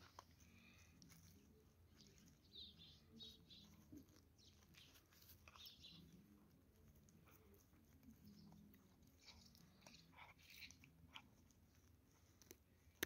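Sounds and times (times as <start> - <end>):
faint bird chirps: 1.5 - 6.4.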